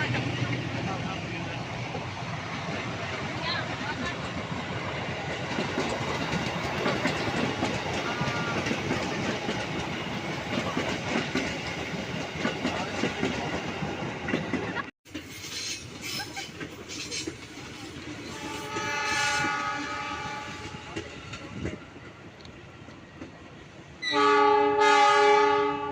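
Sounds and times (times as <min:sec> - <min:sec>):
train wheels clattering: 0:00.0 - 0:22.5.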